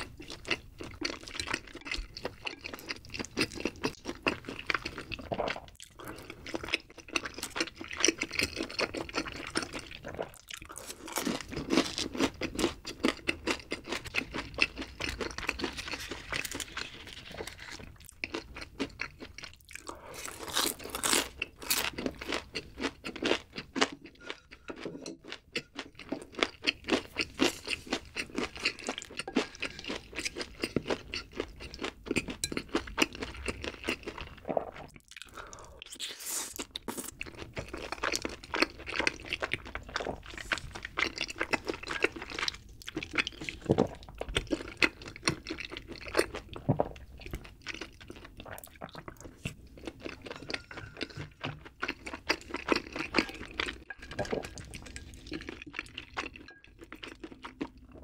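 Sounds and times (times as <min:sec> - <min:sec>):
wet chewing and crunching: 0:00.0 - 0:58.0.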